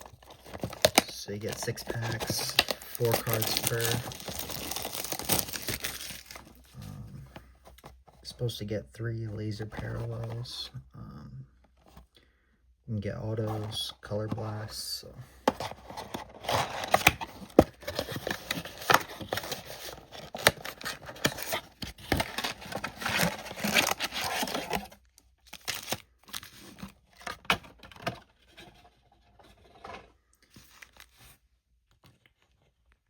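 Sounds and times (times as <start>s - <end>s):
plastic and foil wrappers tearing: 0.0s - 7.0s, 18.0s - 24.9s.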